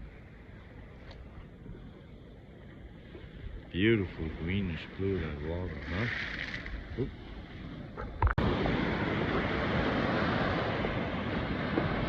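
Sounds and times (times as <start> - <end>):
waves breaking on sandy beach: 3.0 - 12.0.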